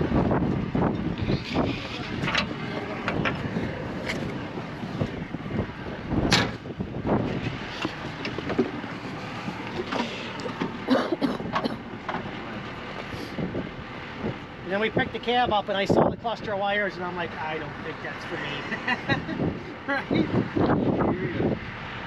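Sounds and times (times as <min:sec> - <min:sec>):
steady low rumble: 0:00.0 - 0:22.0
knocks and clanks: 0:00.9 - 0:05.2, 0:06.2 - 0:12.8.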